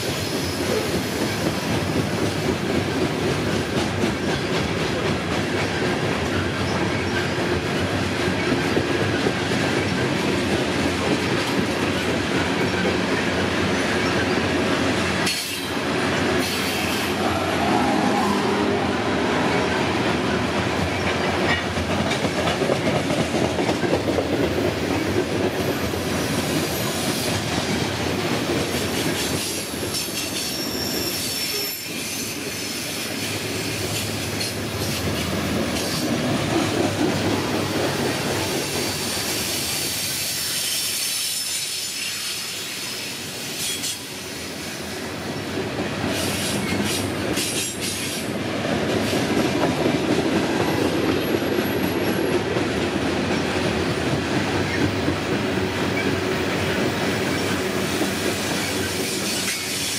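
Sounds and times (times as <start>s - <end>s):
steel wheels rumbling on rail: 0.0s - 59.9s
wheel squeal: 30.2s - 32.9s.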